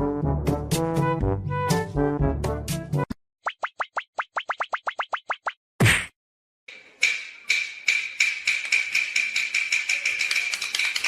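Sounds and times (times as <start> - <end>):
cartoon plop: 3.4 - 6.1.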